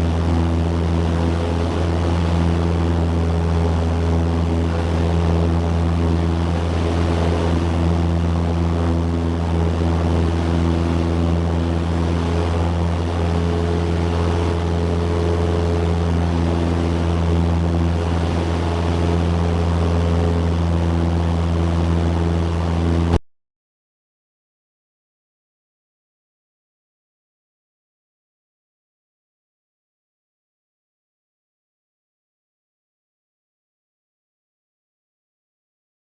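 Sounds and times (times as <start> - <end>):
light airplane engine droning: 0.0 - 23.2.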